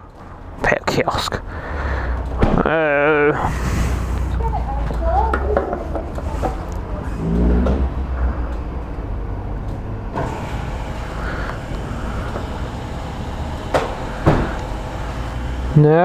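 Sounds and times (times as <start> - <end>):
motor vehicle rumble: 0.0 - 16.0
vehicle hiss: 3.4 - 4.6, 10.2 - 15.8.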